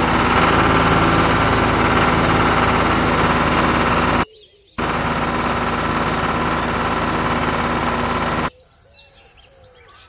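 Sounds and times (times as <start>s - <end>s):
toy tractor engine running: 0.0s - 4.2s, 4.8s - 8.5s.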